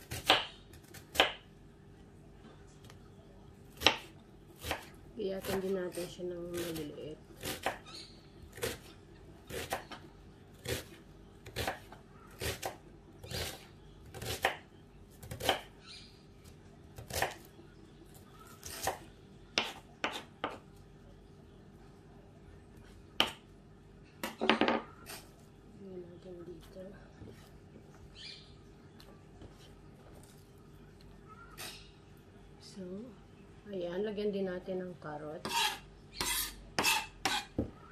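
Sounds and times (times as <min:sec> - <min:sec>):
knife chopping on wooden board: 0:00.1 - 0:01.4, 0:15.2 - 0:15.7, 0:19.6 - 0:20.6.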